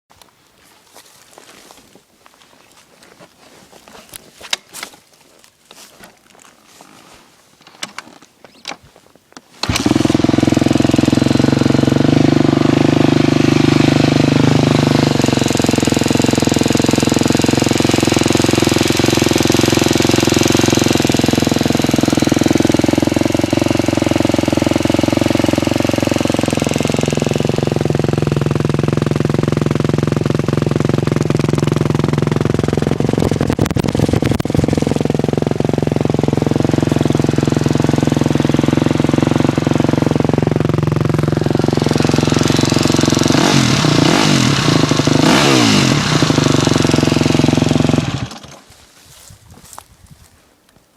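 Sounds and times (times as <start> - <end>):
engine clicking noise: 9.6 - 48.7
dirt bike engine idling: 9.6 - 48.8.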